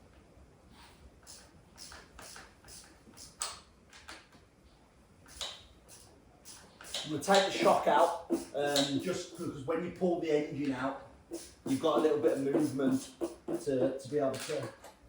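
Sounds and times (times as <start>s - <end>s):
hand tools clicking on metal: 6.6s - 9.2s.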